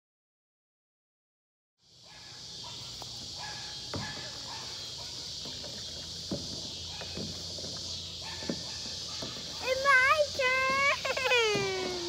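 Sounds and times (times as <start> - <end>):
high-pitched outdoor hiss: 1.8 - 12.0.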